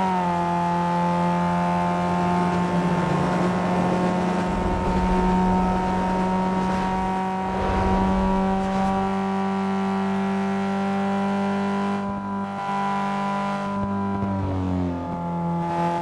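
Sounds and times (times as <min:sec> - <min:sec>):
car engine running: 0:01.7 - 0:09.4.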